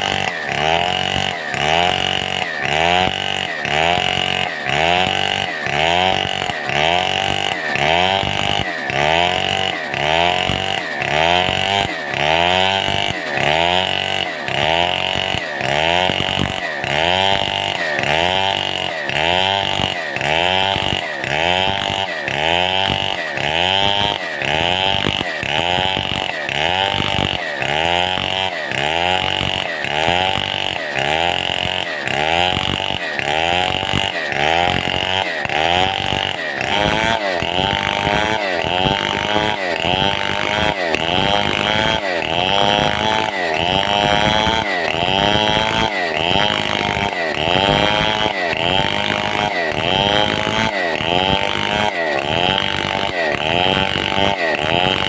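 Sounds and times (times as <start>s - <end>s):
chainsaw cutting timber: 0.0s - 55.0s.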